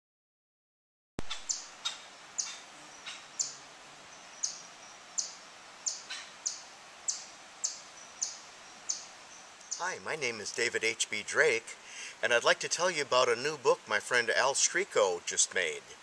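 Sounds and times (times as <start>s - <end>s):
small bird chirping: 1.2s - 10.0s
steady outdoor hiss: 1.2s - 16.0s.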